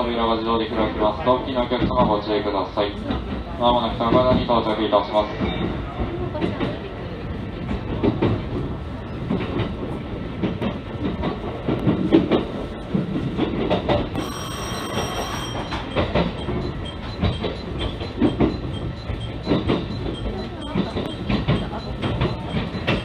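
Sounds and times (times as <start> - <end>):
train wheels rumbling on track: 0.0 - 23.0
level crossing warning bell: 14.2 - 23.0.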